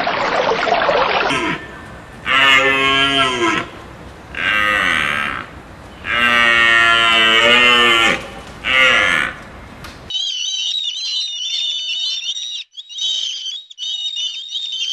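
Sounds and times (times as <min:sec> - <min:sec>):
cattle mooing: 0:01.3 - 0:10.1.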